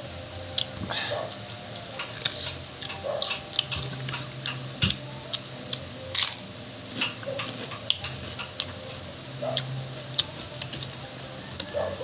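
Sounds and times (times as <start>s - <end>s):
wet chewing: 0.5s - 6.4s, 9.4s - 12.0s.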